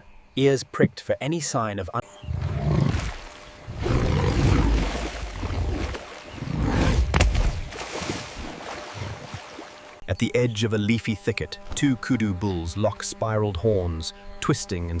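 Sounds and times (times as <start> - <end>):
animal growling low: 2.3 - 3.1, 3.7 - 7.1.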